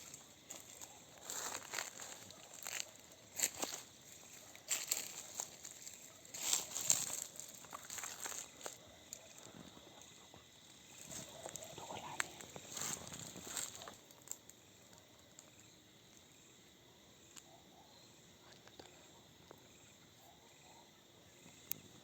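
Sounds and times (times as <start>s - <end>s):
footsteps rustling through dry leaves: 0.0s - 8.8s, 12.6s - 14.0s
insects chirring: 0.0s - 22.0s.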